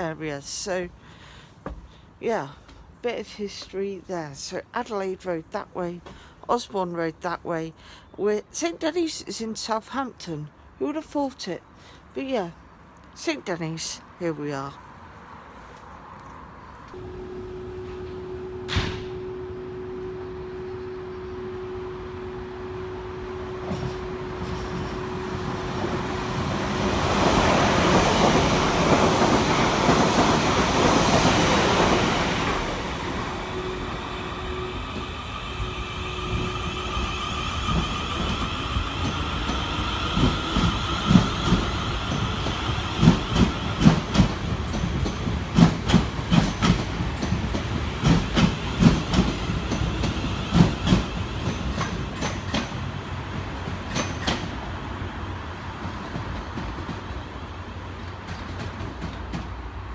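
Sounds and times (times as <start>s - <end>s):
train whine: 16.9s - 57.2s
train rushing past: 17.0s - 59.9s.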